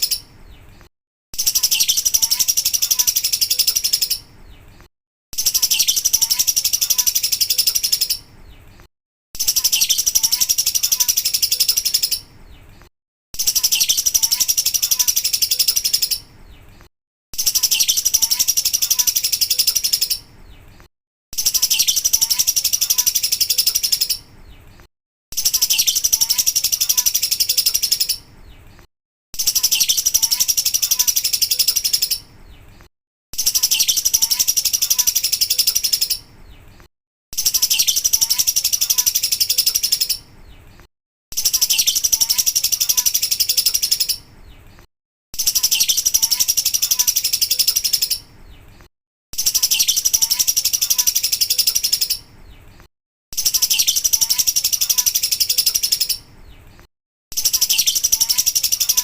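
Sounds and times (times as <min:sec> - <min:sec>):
lovebird chattering trill: 0:01.4 - 0:04.3, 0:05.4 - 0:08.3, 0:09.4 - 0:12.3, 0:13.4 - 0:16.3, 0:17.4 - 0:20.3, 0:21.4 - 0:24.3, 0:25.4 - 0:28.3, 0:29.4 - 0:32.3, 0:33.4 - 0:36.3, 0:37.4 - 0:40.3, 0:41.3 - 0:44.3, 0:45.4 - 0:48.3, 0:49.4 - 0:52.3, 0:53.4 - 0:56.3, 0:57.3 - 0:59.0.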